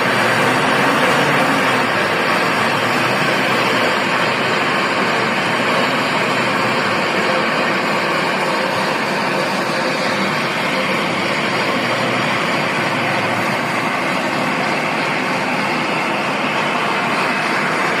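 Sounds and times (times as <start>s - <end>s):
engine running steadily: 0.0s - 18.0s.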